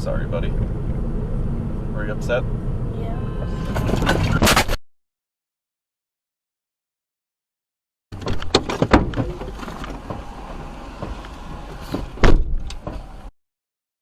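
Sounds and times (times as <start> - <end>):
car road noise inside cabin: 0.0 - 4.5, 8.2 - 13.3
loud thump: 11.9 - 13.0.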